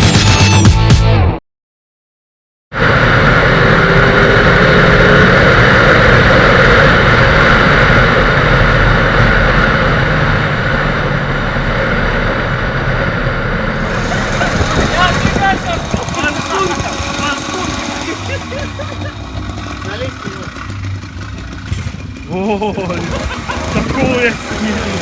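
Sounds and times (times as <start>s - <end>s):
motorcycle engine running: 2.8s - 25.0s.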